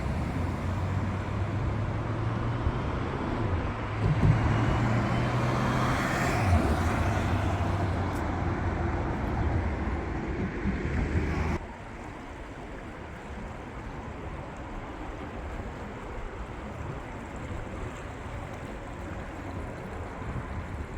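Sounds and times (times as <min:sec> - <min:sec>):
vehicle engine hum: 0:00.0 - 0:11.7
road noise: 0:00.0 - 0:20.9.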